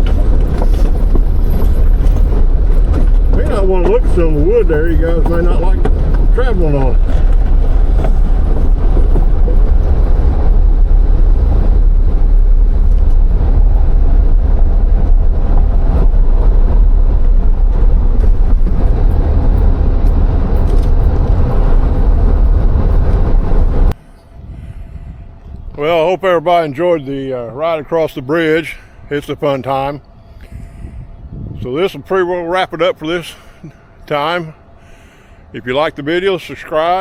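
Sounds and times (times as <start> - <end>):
car tyres rumbling over wooden planks: 0.0 - 24.0
deep steady drone: 0.0 - 37.0.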